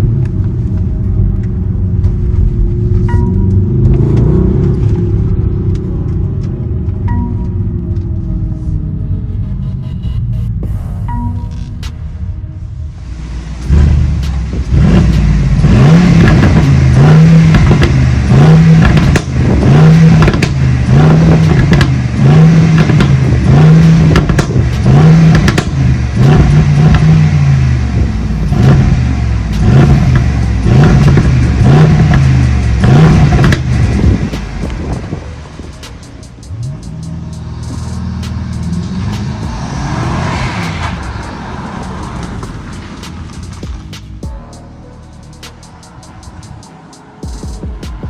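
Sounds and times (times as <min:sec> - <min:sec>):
engine revving in blips: 0:02.2 - 0:12.0, 0:13.6 - 0:44.2
exhaust pops and crackles: 0:13.6 - 0:44.3.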